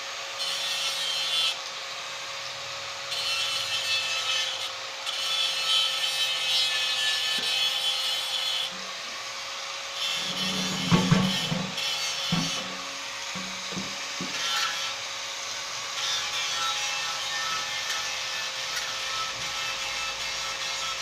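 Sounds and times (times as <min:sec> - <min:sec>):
abrasive rubbing and scraping: 0:10.0 - 0:14.5
knocks: 0:10.2 - 0:12.8, 0:13.4 - 0:14.4.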